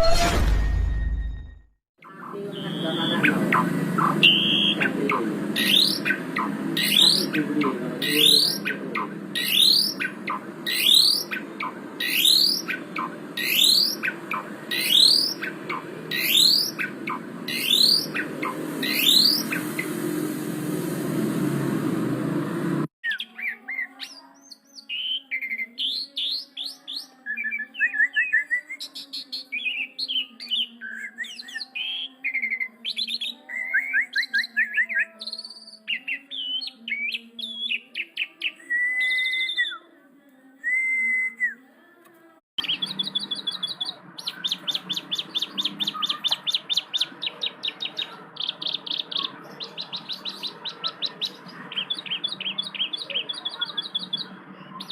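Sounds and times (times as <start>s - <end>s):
starling song: 2.0s - 24.2s, 35.4s - 54.9s
noisy rising glides: 3.4s - 22.9s.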